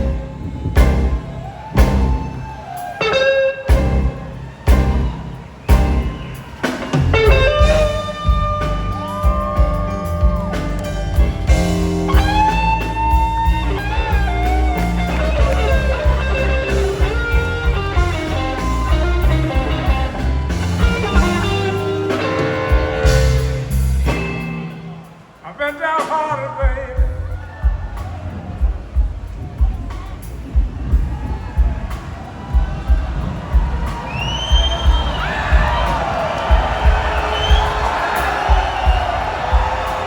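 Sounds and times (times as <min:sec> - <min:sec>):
blues band playing: 0:00.0 - 0:40.0
electric guitar lead with bent notes: 0:03.0 - 0:25.3.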